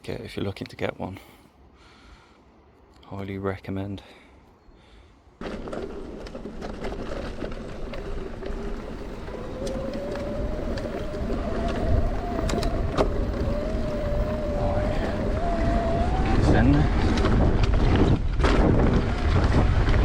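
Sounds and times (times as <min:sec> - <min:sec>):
wind and tyre rumble: 0:04.8 - 0:20.0
electric motor whine: 0:07.9 - 0:17.2.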